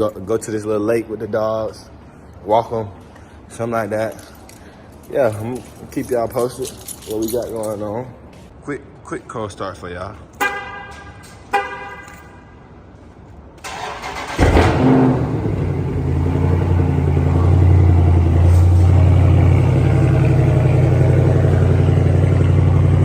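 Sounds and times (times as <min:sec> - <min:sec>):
car starter cranking: 0:13.6 - 0:16.2
car engine revving and idling: 0:14.1 - 0:23.0.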